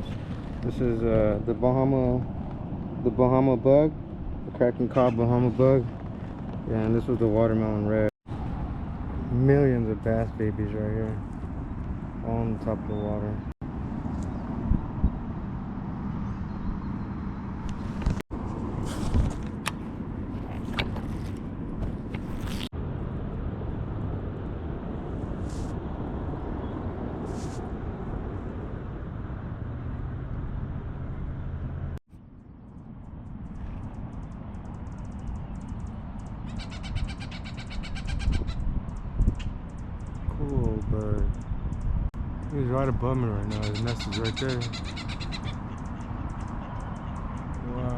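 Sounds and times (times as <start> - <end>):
distant road traffic rumble: 0.0 - 47.9
bird calling rapid notes: 35.0 - 39.5, 43.3 - 47.6.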